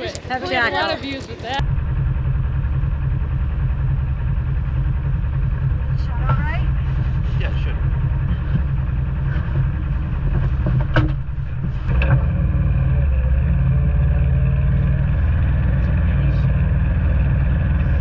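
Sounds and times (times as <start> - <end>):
utility vehicle engine running: 0.0 - 18.0.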